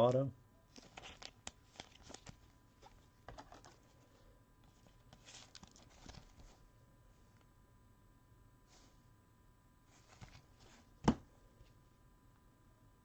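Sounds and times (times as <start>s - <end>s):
trading cards clicking and rustling: 0.7s - 3.9s, 4.8s - 6.5s.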